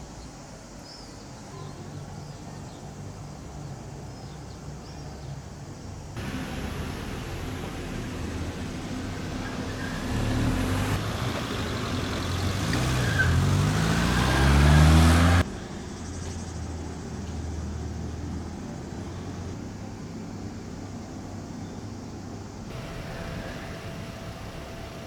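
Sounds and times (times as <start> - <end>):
steady low hum: 6.2 - 11.0, 22.7 - 25.0
vehicle engine accelerating: 6.2 - 15.7, 22.7 - 25.0.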